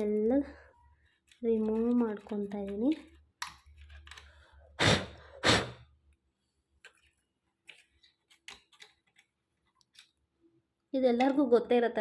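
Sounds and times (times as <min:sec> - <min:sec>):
puffs of breath blown out: 0:04.8 - 0:05.9.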